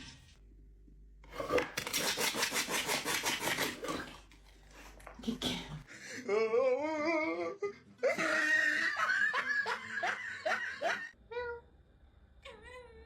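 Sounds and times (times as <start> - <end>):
person laughing hard: 8.0 - 11.1.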